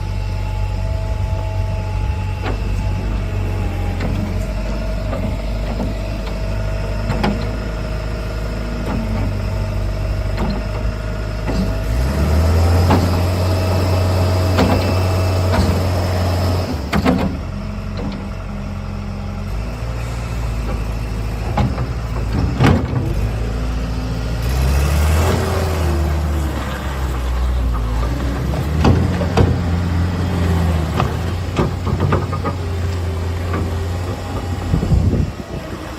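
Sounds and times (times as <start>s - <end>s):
diesel engine running: 0.0s - 35.9s
mechanical knocks and clunks: 7.0s - 7.6s, 14.4s - 15.9s, 16.8s - 18.4s, 20.6s - 23.4s, 27.1s - 35.3s.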